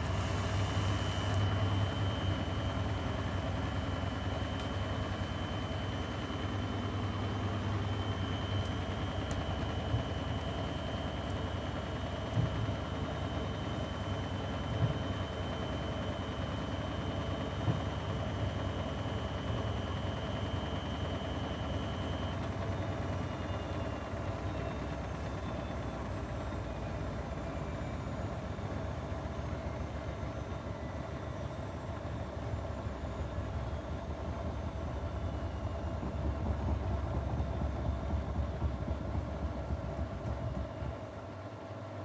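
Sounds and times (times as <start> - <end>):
washing machine motor whining: 0.0 - 12.8, 32.0 - 41.4.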